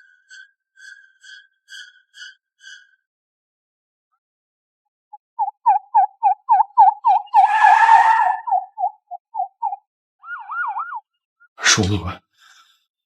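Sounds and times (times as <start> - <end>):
police car siren sweeping: 6.8 - 8.7.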